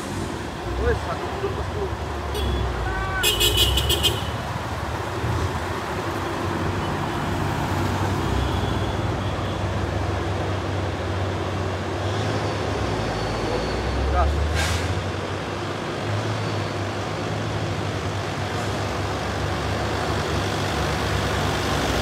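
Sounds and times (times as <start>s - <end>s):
road noise: 0.0s - 22.0s.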